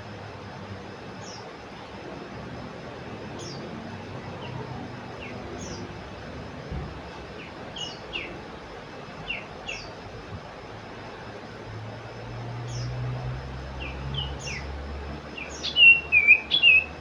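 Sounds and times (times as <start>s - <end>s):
steady background hiss: 0.0s - 17.0s
bird calling high chirps: 13.8s - 17.0s.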